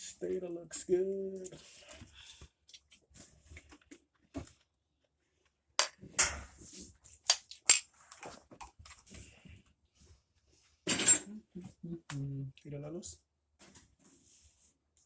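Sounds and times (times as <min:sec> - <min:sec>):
metallic clinks and knocks: 0:05.8 - 0:06.4, 0:10.9 - 0:11.3.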